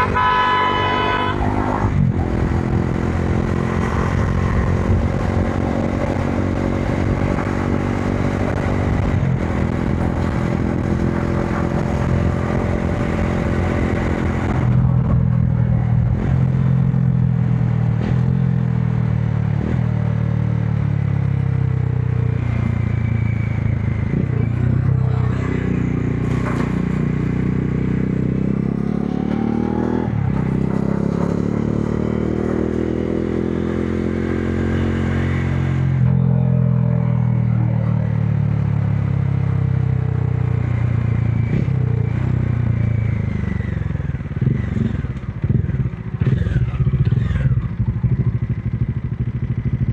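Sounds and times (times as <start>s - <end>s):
motorcycle engine running: 35.5s - 49.9s.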